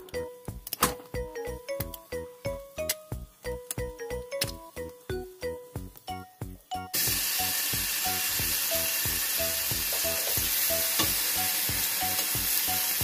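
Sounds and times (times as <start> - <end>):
oil sizzling in a frying pan: 6.9 - 13.0.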